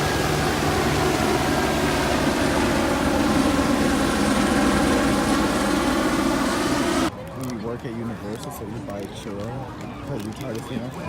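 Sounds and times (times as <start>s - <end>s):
loud mechanical drone: 0.0s - 7.1s.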